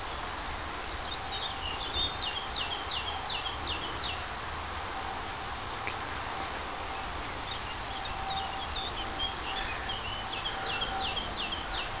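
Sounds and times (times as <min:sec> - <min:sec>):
songbird high chirps: 0:00.0 - 0:04.2, 0:06.9 - 0:12.0
steady background hiss: 0:00.0 - 0:12.0.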